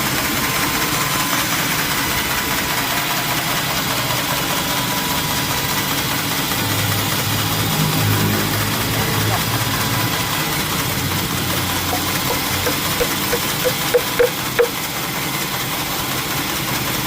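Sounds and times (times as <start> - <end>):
sawmill machinery running: 0.0 - 17.0
deep hum: 7.6 - 14.8.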